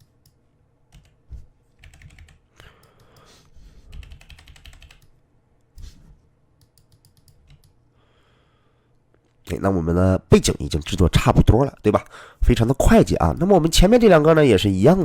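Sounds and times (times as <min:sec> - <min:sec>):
computer keyboard typing: 0:00.0 - 0:01.2, 0:01.8 - 0:03.3, 0:03.9 - 0:05.1, 0:06.6 - 0:07.8.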